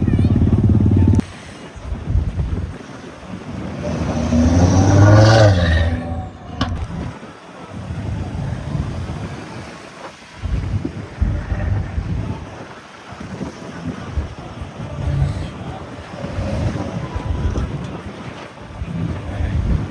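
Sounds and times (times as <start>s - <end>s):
low engine rumble: 0.0s - 9.6s, 10.3s - 19.9s
car engine accelerating past: 3.6s - 7.1s.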